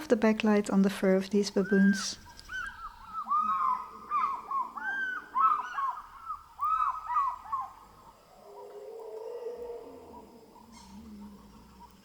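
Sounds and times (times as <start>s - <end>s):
bird calling with whistled notes: 1.4s - 8.3s.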